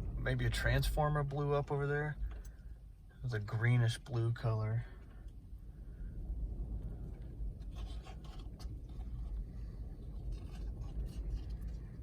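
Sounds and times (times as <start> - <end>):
strong wind rumbling: 0.0 - 1.0, 5.4 - 12.0
faint ticks and scrapes: 2.2 - 2.8, 6.7 - 12.0.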